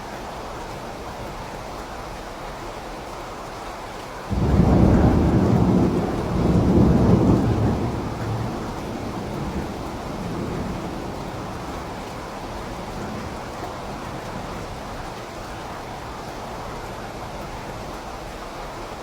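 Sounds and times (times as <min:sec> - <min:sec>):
steady rain: 0:00.0 - 0:19.0
thunder rumbling: 0:04.3 - 0:17.6.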